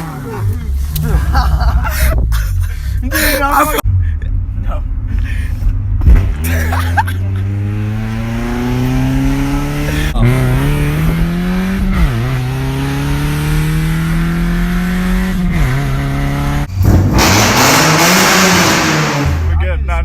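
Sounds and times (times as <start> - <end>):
car engine revving through gears: 6.0 - 19.6.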